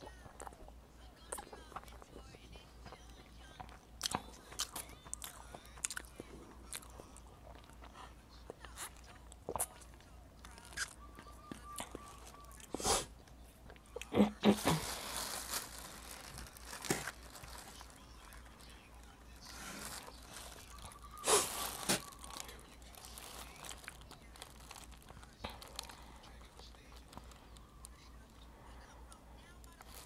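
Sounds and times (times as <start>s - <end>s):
chewing: 0.1s - 14.2s
plastic bag rustling: 14.5s - 27.9s.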